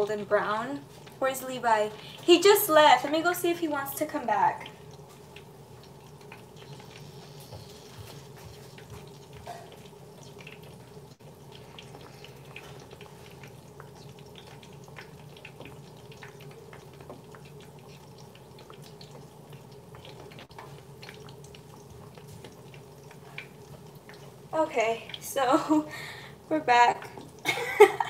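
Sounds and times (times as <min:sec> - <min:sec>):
oil popping and crackling: 0:00.0 - 0:28.0
plantain frying in oil: 0:00.0 - 0:28.0.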